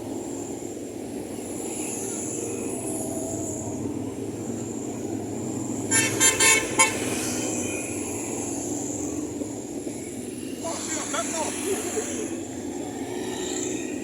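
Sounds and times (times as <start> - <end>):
road traffic rumble: 0.0 - 14.0
vehicle horn tooting: 5.8 - 8.2.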